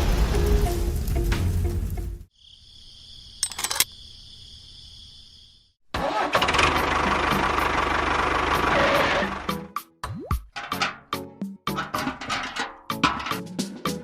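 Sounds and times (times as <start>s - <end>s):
engine running loudly: 6.3s - 9.5s.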